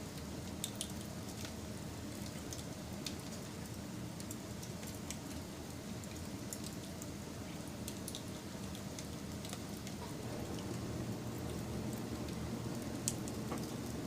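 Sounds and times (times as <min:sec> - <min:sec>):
wood fire crackling and popping: 0:02.2 - 0:07.2, 0:07.8 - 0:14.0.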